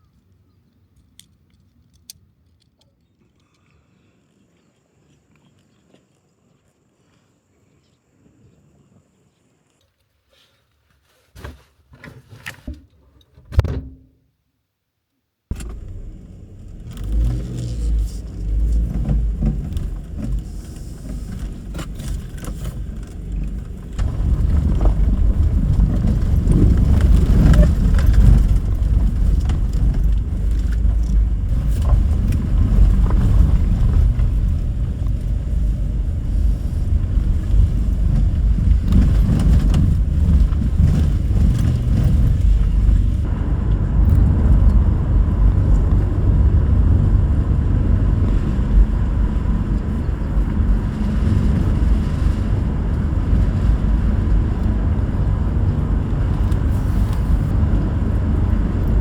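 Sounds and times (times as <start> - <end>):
low vehicle rumble: 15.5 - 59.0.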